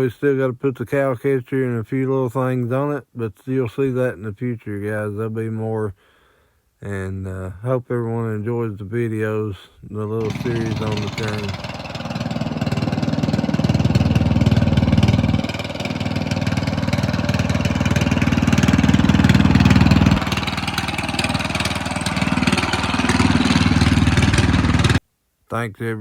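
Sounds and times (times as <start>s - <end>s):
small engine putter: 10.2s - 25.0s.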